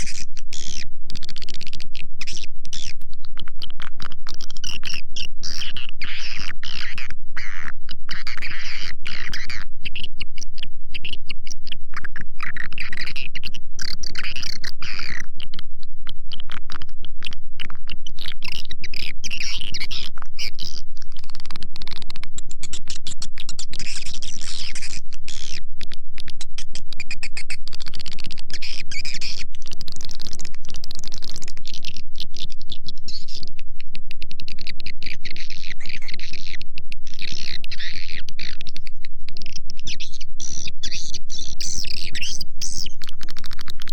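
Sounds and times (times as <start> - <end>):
faint low hum: 0.0 - 43.9
swiftlets chirping and twittering: 26.4 - 30.4, 34.6 - 43.9.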